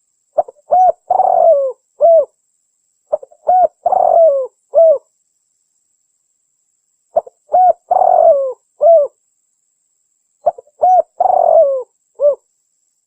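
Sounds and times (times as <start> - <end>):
dove cooing: 0.4 - 2.4, 3.1 - 5.1, 7.2 - 9.2, 10.4 - 12.4.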